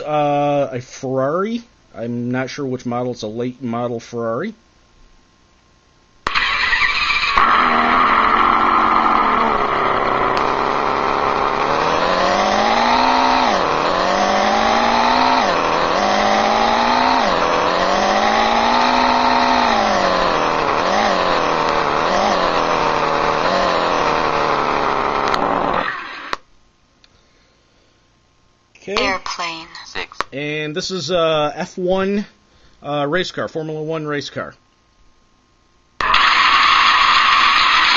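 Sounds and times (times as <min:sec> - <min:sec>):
sports car engine revving from speaker: 0:06.3 - 0:25.9.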